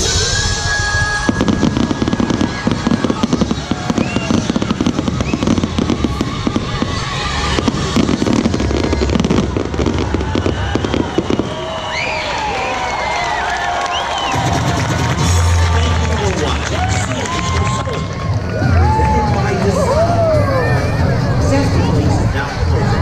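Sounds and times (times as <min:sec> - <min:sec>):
firework whistle: 0:00.0 - 0:15.6
fireworks bursts and crackles: 0:00.0 - 0:23.0.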